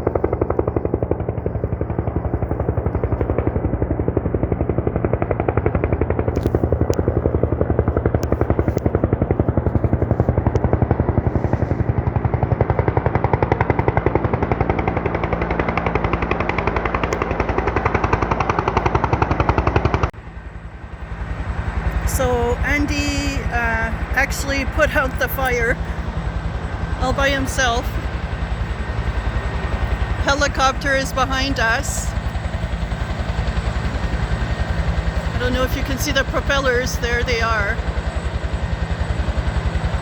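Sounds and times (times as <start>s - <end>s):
helicopter rotor chopping: 0.0s - 40.0s
low engine drone: 15.9s - 40.0s.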